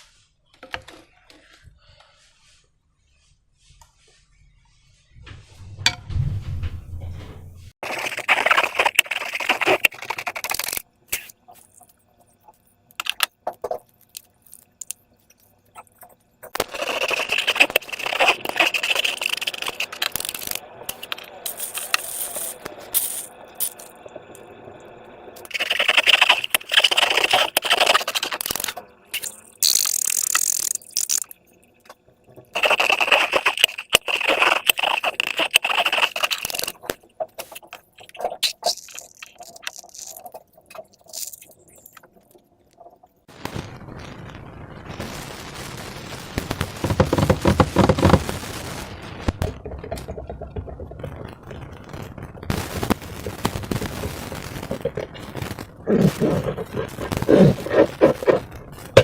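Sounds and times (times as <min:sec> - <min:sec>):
crackly slime scraping: 0:07.8 - 0:11.5, 0:16.0 - 0:23.8, 0:25.4 - 0:31.3, 0:32.5 - 0:42.2, 0:46.6 - 0:48.4, 0:49.4 - 0:59.0.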